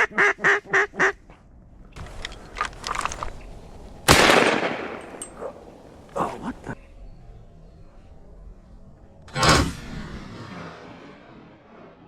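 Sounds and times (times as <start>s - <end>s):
shotgun shot: 4.1s - 5.2s.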